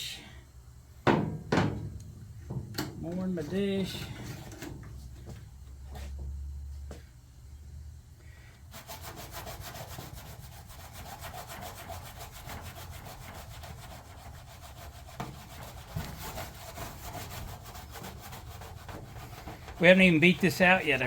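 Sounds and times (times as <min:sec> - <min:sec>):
scrub pad rubbing metal panel: 0:03.2 - 0:04.6, 0:08.7 - 0:21.0.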